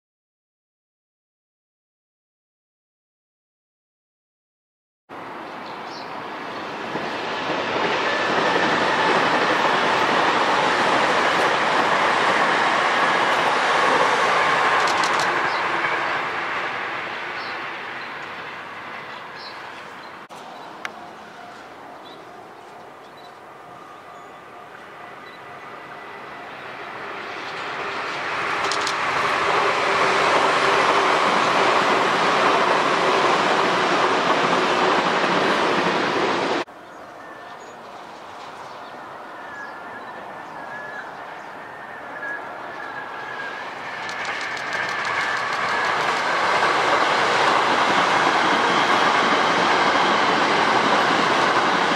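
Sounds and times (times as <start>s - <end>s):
electric train passing: 5.2s - 51.9s
sharp clicks: 14.8s - 15.3s, 28.6s - 29.0s, 44.0s - 46.3s.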